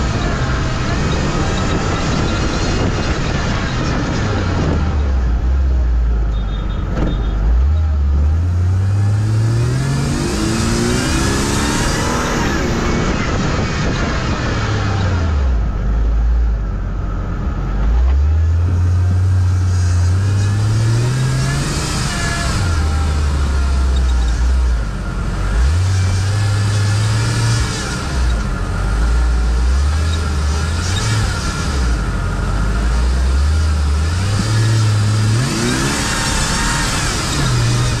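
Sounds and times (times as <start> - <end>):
racing car engine revving: 0.0 - 15.8, 17.2 - 38.0.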